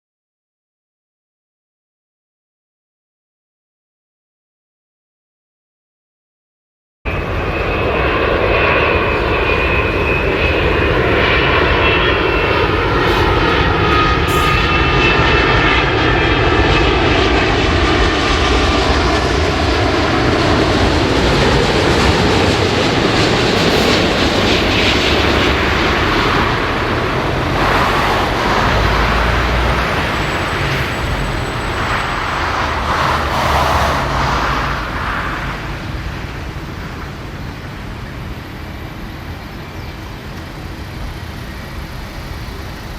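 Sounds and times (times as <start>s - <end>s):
airliner passing overhead: 7.1s - 42.9s.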